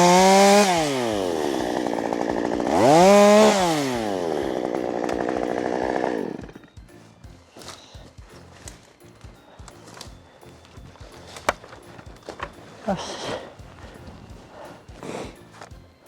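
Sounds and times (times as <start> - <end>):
chainsaw engine revving and idling: 0.0 - 6.8.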